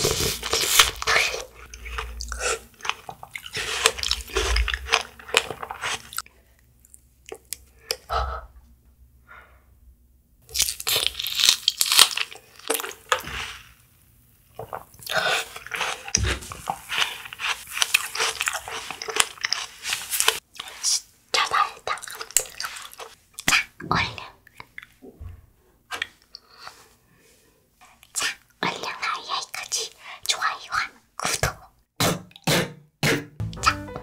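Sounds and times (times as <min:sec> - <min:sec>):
biting and chewing strawberry: 0:00.0 - 0:07.6, 0:10.5 - 0:13.6, 0:14.6 - 0:20.4.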